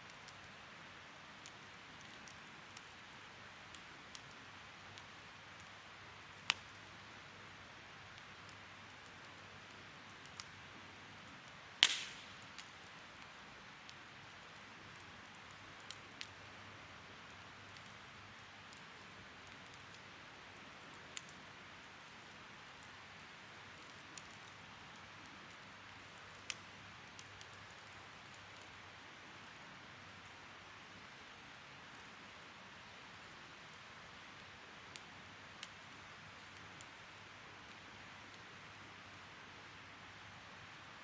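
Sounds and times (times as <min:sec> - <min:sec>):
bonfire hissing and crackling: 0:00.0 - 0:41.0
loud pop from fire: 0:11.8 - 0:12.7.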